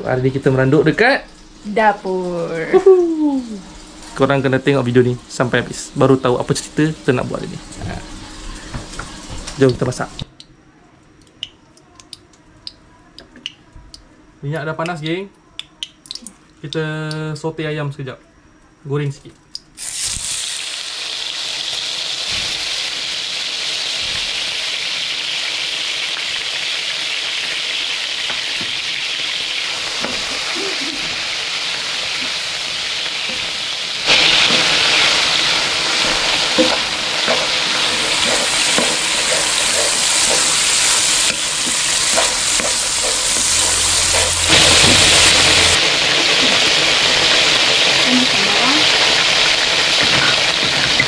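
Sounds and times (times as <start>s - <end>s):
chicken sizzling in hot oil: 0.0s - 10.3s, 19.8s - 51.0s
wooden spatula scraping a wok: 34.1s - 45.8s.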